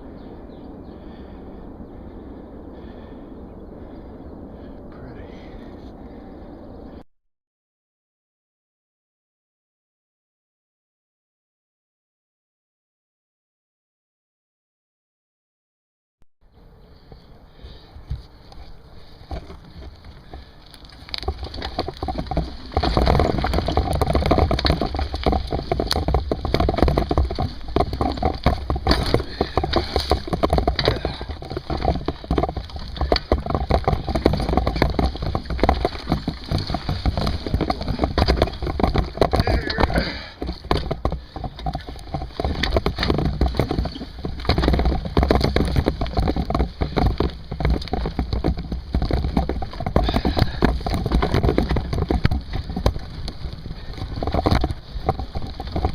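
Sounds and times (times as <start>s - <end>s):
wind rumble on microphone: 0.0s - 7.0s
bike rattling and knocking: 0.1s - 1.4s, 2.3s - 3.2s, 17.0s - 55.9s.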